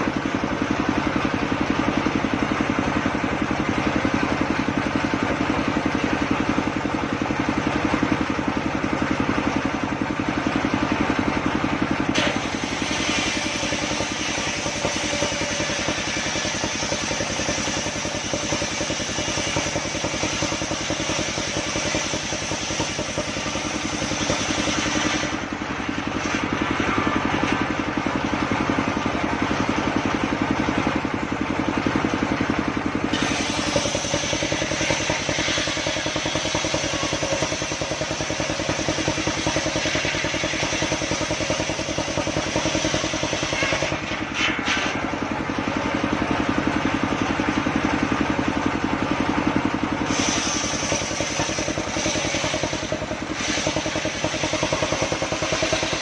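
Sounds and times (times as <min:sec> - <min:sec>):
engine pulsing: 0:00.0 - 0:56.0
saw blade hissing through wood: 0:12.2 - 0:25.4, 0:33.1 - 0:44.9, 0:50.0 - 0:56.0.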